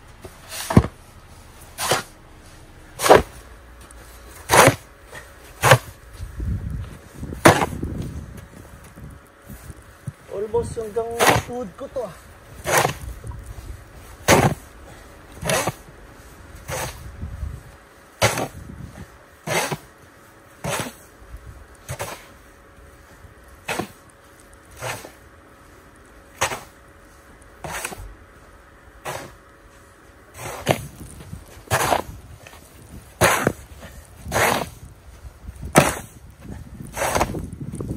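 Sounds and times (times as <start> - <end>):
footsteps crunching in snow: 0.0 - 37.9.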